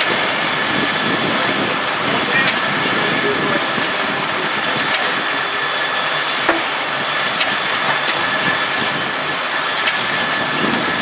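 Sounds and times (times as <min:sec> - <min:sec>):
sawmill machinery running: 0:00.0 - 0:11.0
sharp clicks and knocks: 0:06.4 - 0:06.8.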